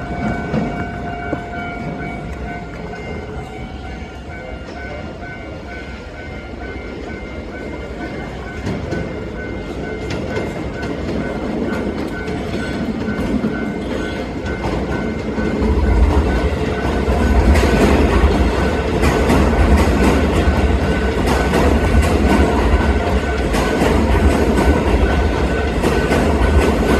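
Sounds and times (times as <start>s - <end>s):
train rumbling: 0.0s - 26.9s
wheels clacking over rail joints: 7.6s - 26.9s.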